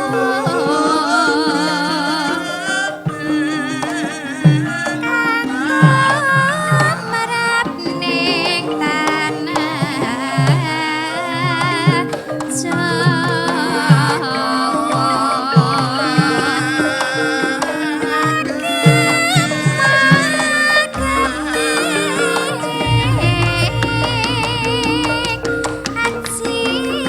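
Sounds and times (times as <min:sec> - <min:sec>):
held metallophone notes: 0:00.0 - 0:27.0
high wavering melody: 0:00.0 - 0:27.0
low hand-drum strokes: 0:19.2 - 0:27.0.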